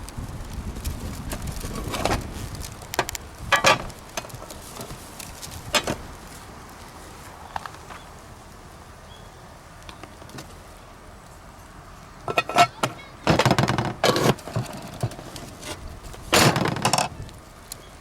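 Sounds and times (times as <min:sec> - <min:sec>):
gear clattering and rattling: 0:01.1 - 0:06.1, 0:12.3 - 0:17.2.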